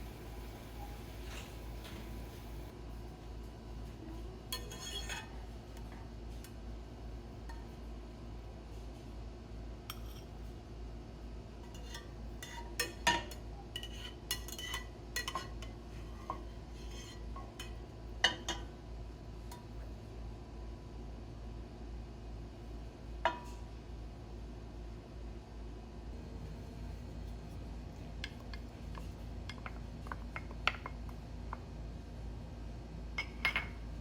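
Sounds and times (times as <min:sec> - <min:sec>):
utensils and dishes clinking: 0:00.0 - 0:02.7, 0:11.7 - 0:18.7
steady low hum: 0:00.0 - 0:04.4, 0:14.3 - 0:34.0.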